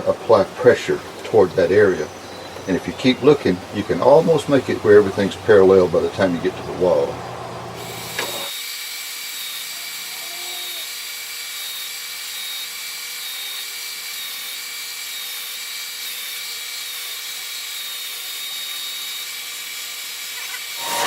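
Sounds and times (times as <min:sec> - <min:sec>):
power sander running: 0:10.8 - 0:21.0.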